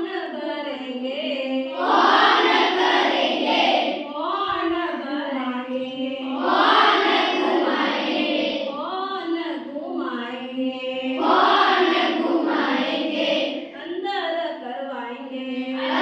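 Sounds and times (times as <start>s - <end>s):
children chanting in unison: 1.7s - 4.1s, 6.0s - 8.8s, 11.0s - 13.8s, 15.7s - 16.0s.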